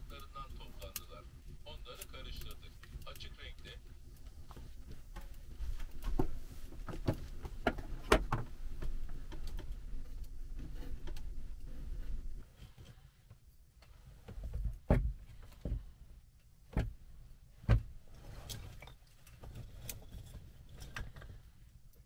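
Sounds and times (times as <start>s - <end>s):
sharp knocks and thumps: 14.3s - 16.0s, 16.6s - 18.0s.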